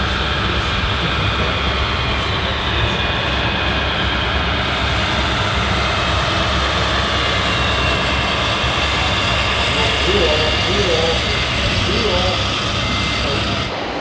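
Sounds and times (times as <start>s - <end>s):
faint high whines: 0.0s - 14.0s
rc model trucks running: 0.0s - 14.0s.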